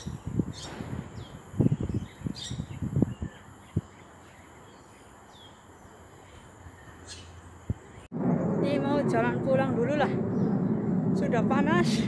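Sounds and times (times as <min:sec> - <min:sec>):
bird chirps: 0:00.0 - 0:08.1
low thumps and rumbles: 0:08.1 - 0:12.0.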